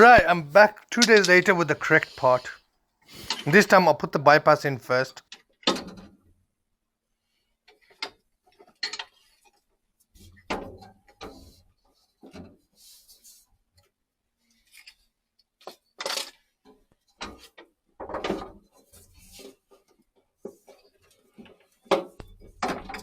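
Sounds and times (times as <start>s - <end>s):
boiler parts clicking and knocking: 0.0s - 2.4s.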